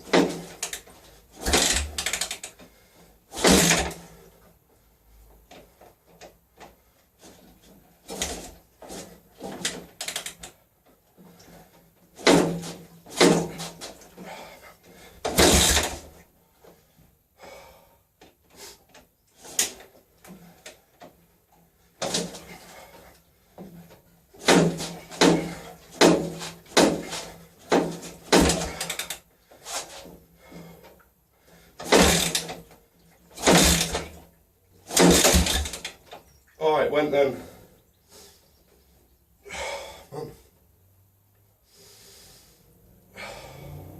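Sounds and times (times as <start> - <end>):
motorcycle engine kick-started: 1.4 - 2.5, 15.3 - 16.1, 31.8 - 32.7, 33.4 - 34.2, 34.9 - 36.1.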